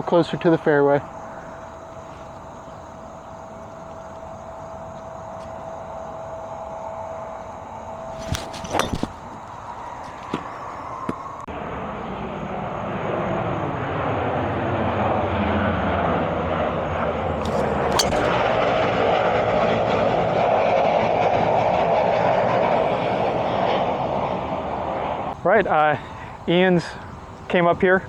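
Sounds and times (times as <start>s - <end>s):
low-flying airplane passing over: 0.0s - 28.0s
sharp click: 17.4s - 18.3s.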